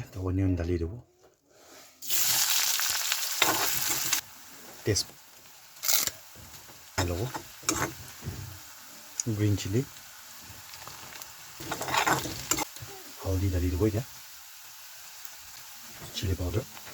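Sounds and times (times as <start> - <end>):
onion sizzling in hot oil: 1.6 - 16.9
stirring knocks in a pan: 6.3 - 8.6.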